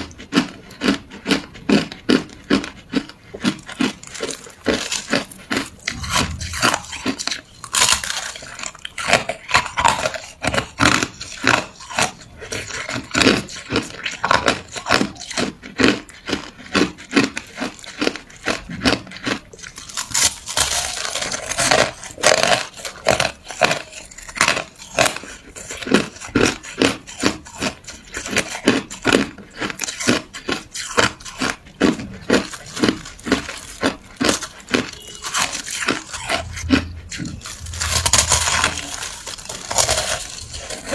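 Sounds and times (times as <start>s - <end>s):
person chewing ice: 0.0s - 40.9s.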